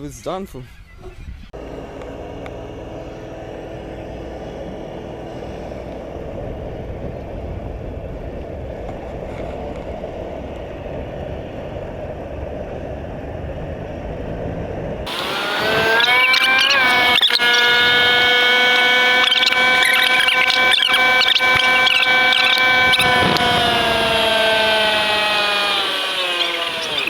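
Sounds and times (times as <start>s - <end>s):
wind: 0.0s - 27.0s
outboard motor running: 1.6s - 10.5s, 15.1s - 27.0s
high-pitched squealing tone: 15.1s - 27.0s
water noise: 15.1s - 27.0s.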